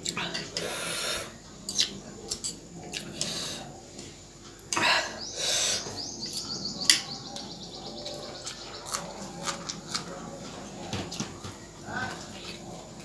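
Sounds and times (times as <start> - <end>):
bird chirping trill: 5.1 - 9.4.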